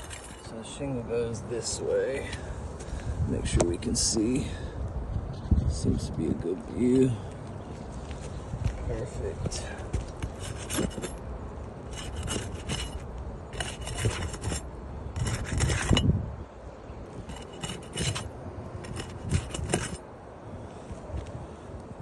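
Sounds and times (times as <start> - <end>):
roof shingles scraping: 10.0 - 11.2, 11.8 - 16.0, 17.2 - 20.0.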